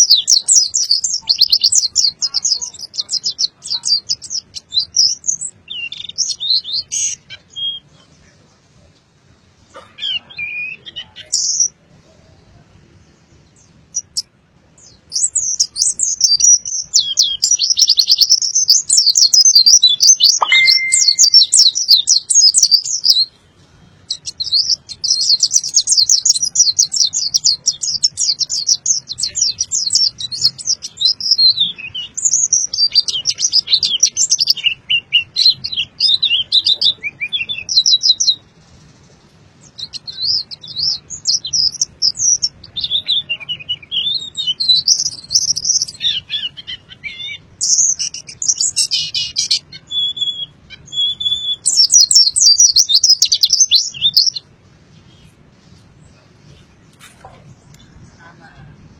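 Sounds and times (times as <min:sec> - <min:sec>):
bird twittering: 0:15.1 - 0:23.2, 0:39.6 - 0:54.4.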